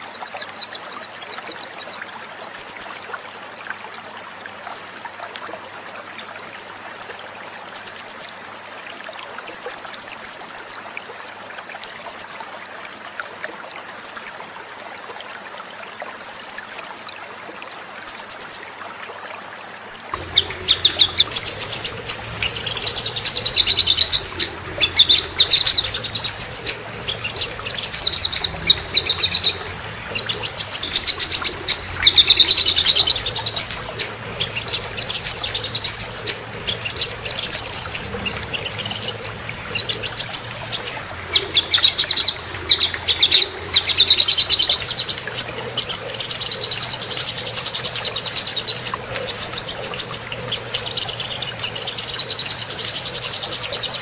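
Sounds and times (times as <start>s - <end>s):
songbird chattering trills: 20.2s - 47.2s.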